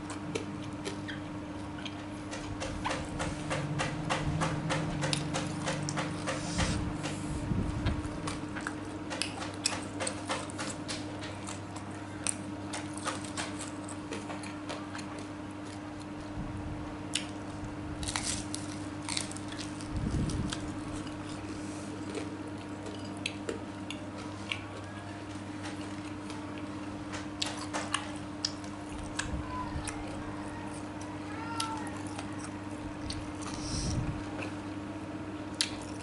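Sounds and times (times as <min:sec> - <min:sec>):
person chewing: 0:00.0 - 0:01.2, 0:11.4 - 0:16.2, 0:17.1 - 0:17.4, 0:18.0 - 0:25.0, 0:31.6 - 0:34.6, 0:35.5 - 0:36.0.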